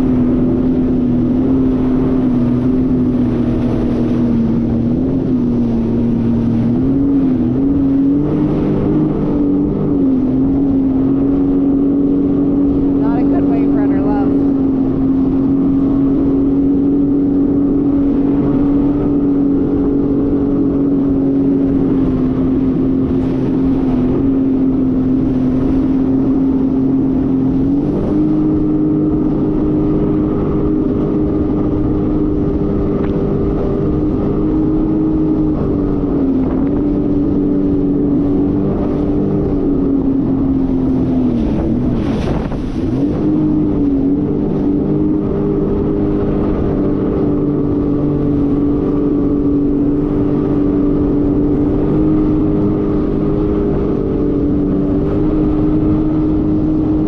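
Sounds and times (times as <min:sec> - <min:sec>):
jet ski engine: 0:00.0 - 0:57.0.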